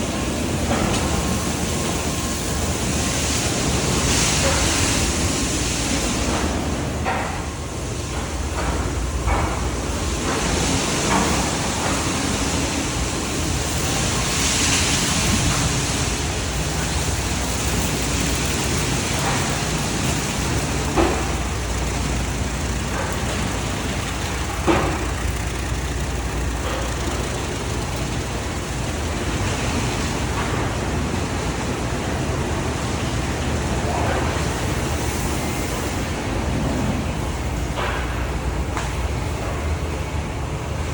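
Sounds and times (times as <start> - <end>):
car wash machinery noise: 0.0 - 40.9
water spray hiss: 12.6 - 30.6.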